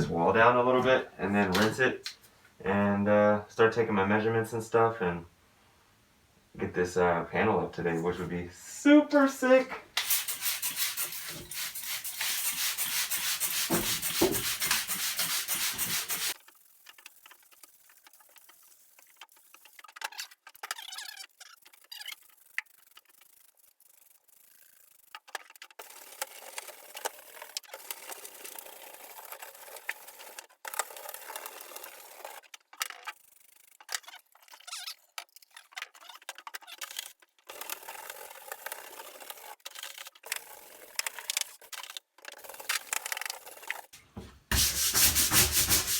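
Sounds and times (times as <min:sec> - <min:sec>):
scraping and sanding wood: 0:10.0 - 0:20.1, 0:38.7 - 0:45.9.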